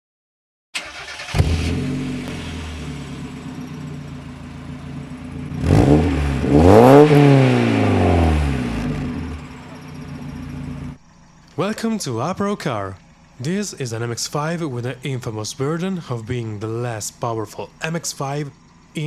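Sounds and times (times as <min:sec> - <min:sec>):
car engine revving: 0:00.8 - 0:11.0
car engine starting and idling: 0:00.8 - 0:19.0.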